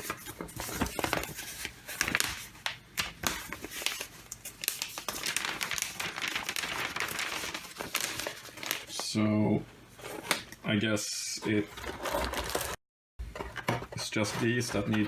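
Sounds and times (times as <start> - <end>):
paper and packaging crinkling: 0.0 - 9.1, 11.4 - 12.8.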